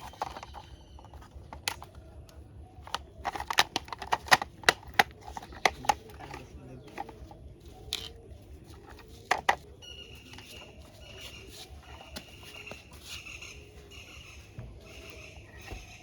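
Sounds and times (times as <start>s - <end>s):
faint high chirping: 0.0s - 3.2s, 5.2s - 16.0s
plastic toy parts clicking: 0.0s - 10.7s.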